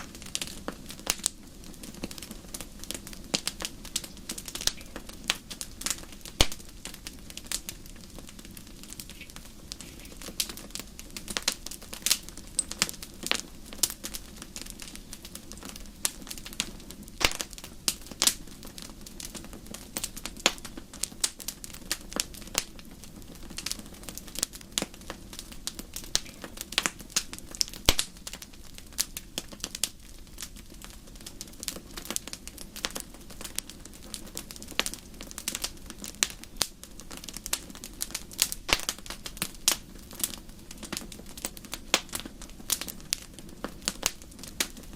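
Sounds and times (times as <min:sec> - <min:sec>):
campfire crackling: 0:00.0 - 0:44.9.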